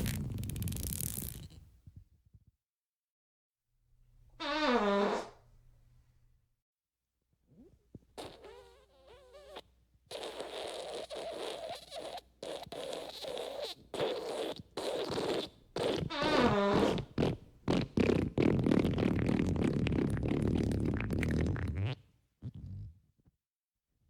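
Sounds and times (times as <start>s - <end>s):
fart sound effects: 0.0s - 1.6s, 4.4s - 5.4s, 8.2s - 22.9s.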